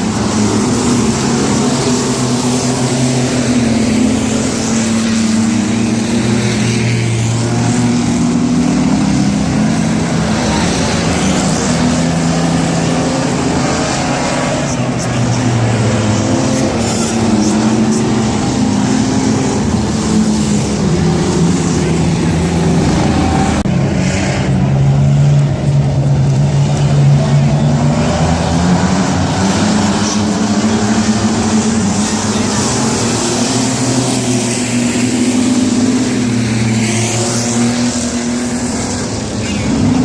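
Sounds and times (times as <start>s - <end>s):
race truck engines passing: 0.0s - 40.0s.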